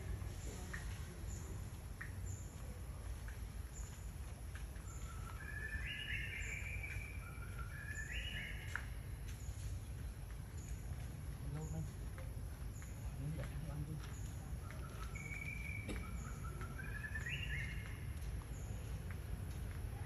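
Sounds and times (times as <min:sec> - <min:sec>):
bird calls of stepped notes: 0:13.9 - 0:19.0.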